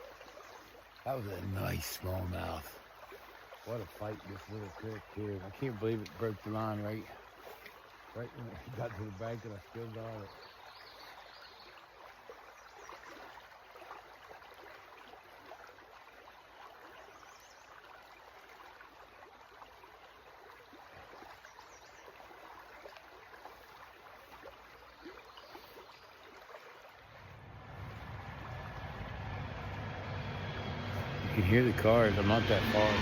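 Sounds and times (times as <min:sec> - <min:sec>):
creek flowing and trickling: 0:00.0 - 0:33.0
car rumble on nearby road: 0:27.2 - 0:33.0.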